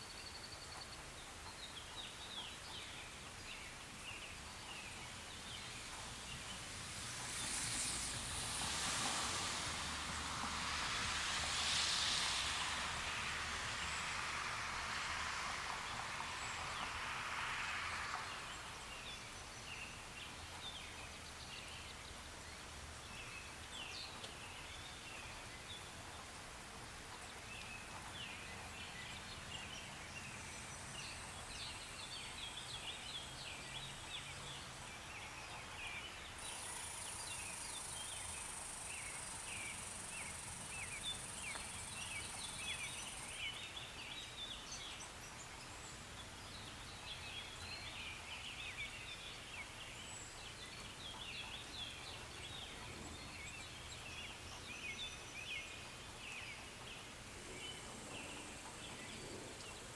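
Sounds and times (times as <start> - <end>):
soft rain-like hiss: 0.0 - 59.9
high-pitched hiss: 3.8 - 21.8, 27.6 - 46.4
small birds chirping: 15.3 - 59.9.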